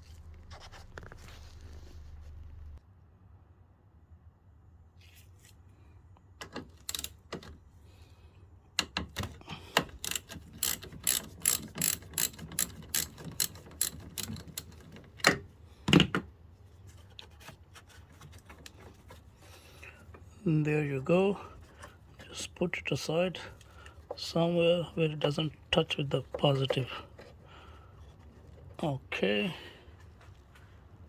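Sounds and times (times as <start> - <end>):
ratchet wrench clicking: 6.8 - 7.2, 9.8 - 14.8.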